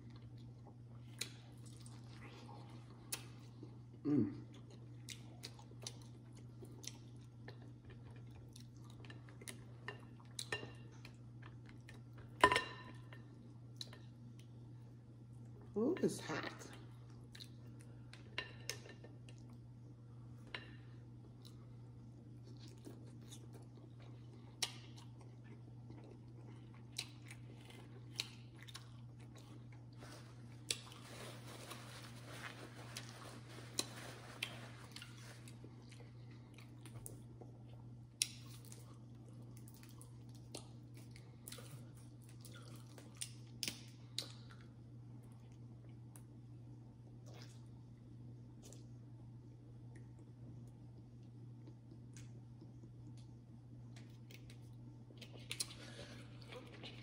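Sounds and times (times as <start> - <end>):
steady low hum: 0.0 - 57.0
person chewing: 0.1 - 12.4, 21.2 - 46.3, 53.9 - 57.0.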